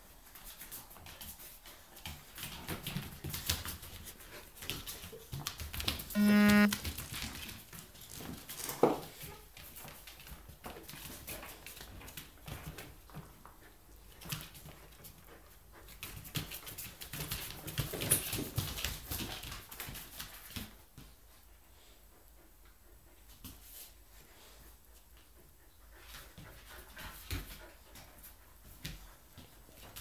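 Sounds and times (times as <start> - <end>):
dogs scuffling: 0.2 - 6.1, 6.9 - 21.1
short sharp dog sound: 6.2 - 6.8.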